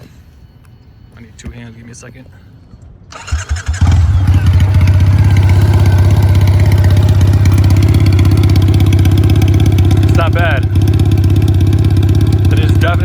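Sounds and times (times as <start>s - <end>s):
motorcycle engine idling loudly: 3.2s - 13.0s.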